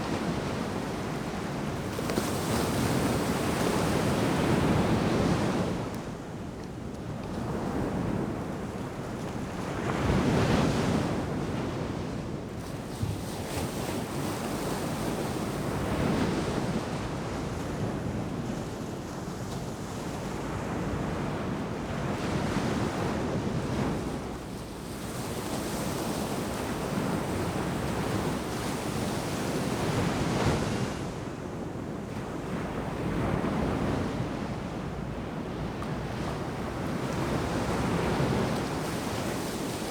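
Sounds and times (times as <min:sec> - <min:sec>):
ocean waves breaking on beach: 0:12.8 - 0:39.9.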